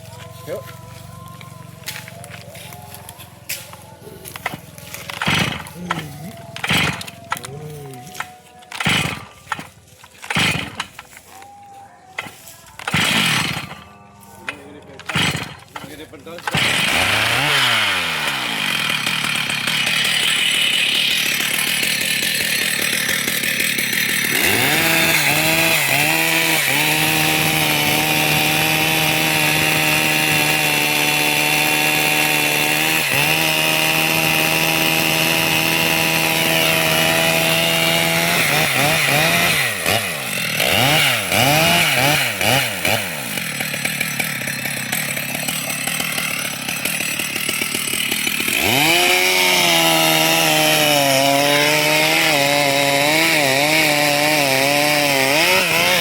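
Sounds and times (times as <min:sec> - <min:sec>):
chainsaw revving and sawing wood: 0:00.0 - 0:56.0.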